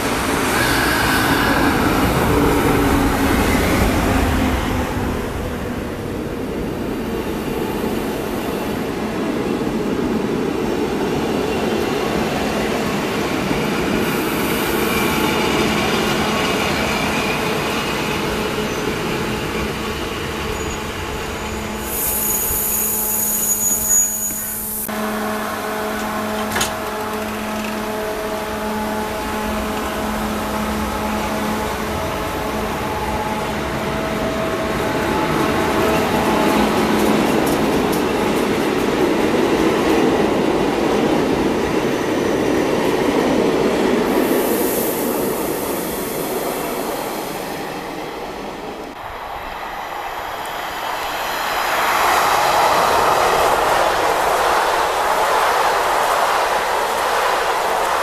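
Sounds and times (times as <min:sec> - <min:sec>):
train whining tones: 0:00.0 - 0:09.7, 0:11.1 - 0:58.0
train passing at speed: 0:00.0 - 0:58.0
train wheels rolling: 0:25.8 - 0:28.4, 0:29.3 - 0:58.0.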